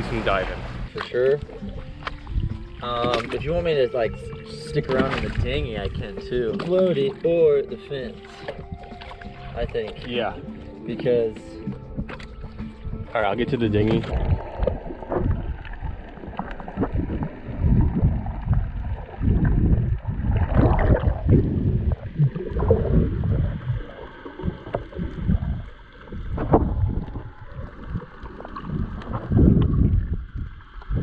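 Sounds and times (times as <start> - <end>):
knocks and splashes: 0.0 - 10.3, 11.2 - 31.0
water sloshing around boat: 0.0 - 31.0
wind buffeting microphone: 1.6 - 6.7, 11.9 - 31.0.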